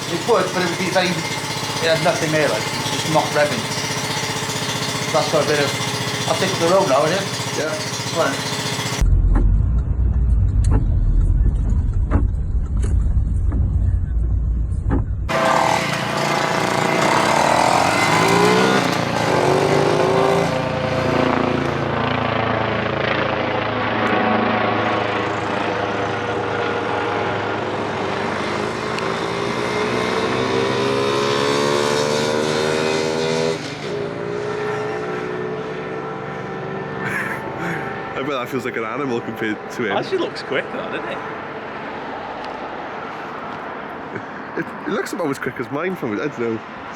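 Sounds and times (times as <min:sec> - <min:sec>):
small motorbike engine revving: 0:00.0 - 0:09.0, 0:15.3 - 0:41.8
low rumble with clicks: 0:09.0 - 0:15.3.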